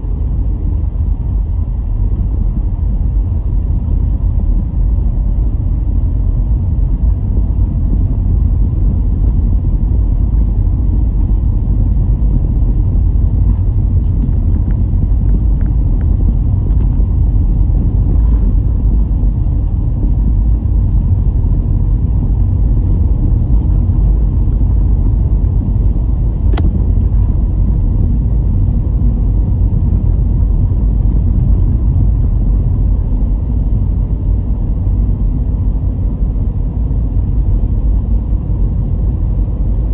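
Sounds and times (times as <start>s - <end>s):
car engine and road noise: 0.0s - 39.9s
sharp click: 26.4s - 26.9s.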